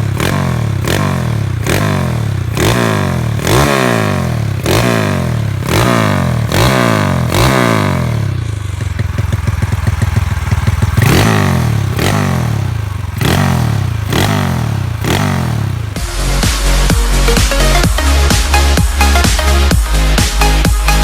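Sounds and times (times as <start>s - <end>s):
motorcycle popping idle: 0.0s - 16.2s
motorcycle revving: 0.0s - 21.0s.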